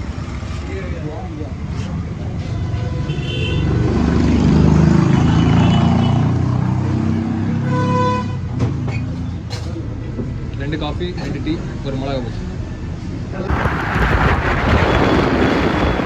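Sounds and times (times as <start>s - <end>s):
vehicle horn tooting: 3.1s - 3.7s, 7.6s - 8.4s
heavy vehicle engine rumble: 13.4s - 16.0s.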